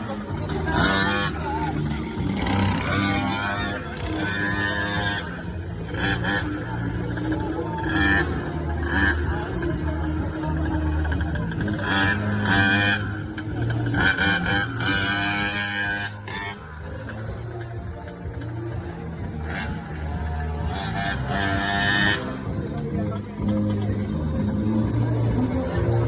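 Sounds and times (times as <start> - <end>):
small two-stroke engine running: 0.0 - 26.0.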